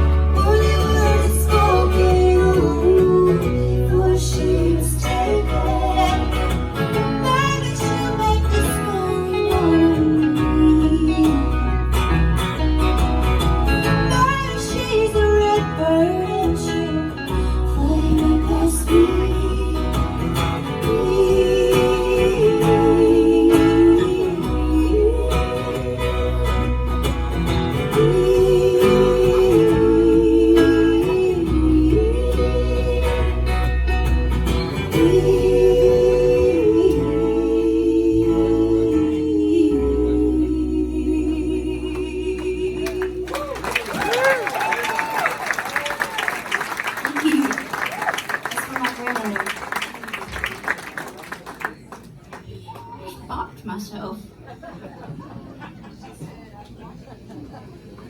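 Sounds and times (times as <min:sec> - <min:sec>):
person singing: 0:00.0 - 0:11.8, 0:14.1 - 0:26.9, 0:27.8 - 0:33.7, 0:34.8 - 0:43.6
bass line: 0:00.0 - 0:43.8
guitar: 0:00.0 - 0:54.0.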